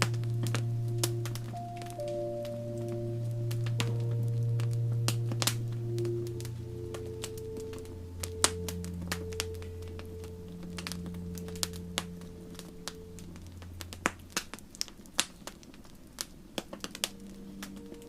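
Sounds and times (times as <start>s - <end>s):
campfire crackling and popping: 0.0s - 18.0s
soft ambient music: 0.0s - 18.0s.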